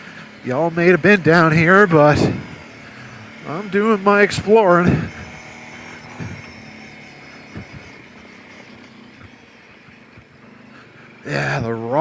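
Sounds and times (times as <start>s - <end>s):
atv engine running: 0.0s - 12.0s
faint hum: 4.6s - 11.6s.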